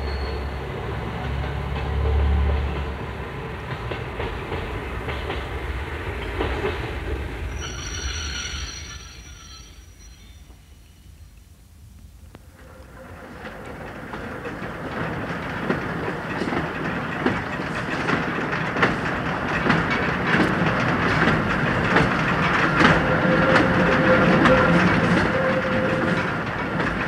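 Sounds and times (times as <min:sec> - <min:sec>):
train wheels clattering over rail joints: 0:00.9 - 0:07.8, 0:12.6 - 0:27.0.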